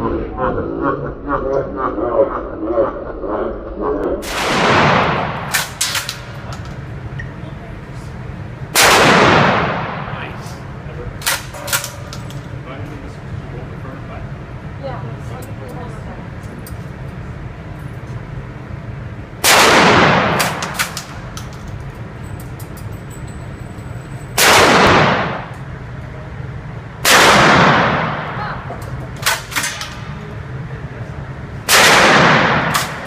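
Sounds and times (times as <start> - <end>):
loud echoing gunshots: 4.2 - 6.4, 8.7 - 10.4, 19.4 - 21.3, 24.4 - 25.5, 27.0 - 28.7, 31.7 - 33.0.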